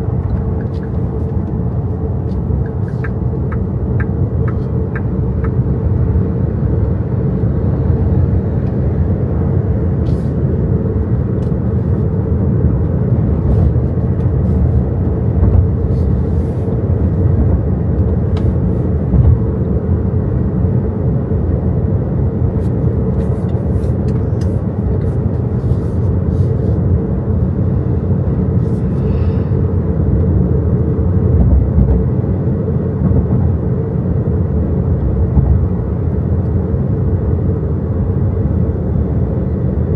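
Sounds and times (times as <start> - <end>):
tyre and road rumble: 8.6 - 19.6.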